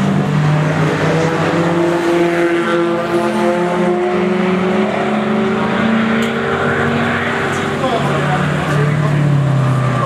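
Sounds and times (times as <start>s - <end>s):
racing car engines: 0.0s - 10.0s.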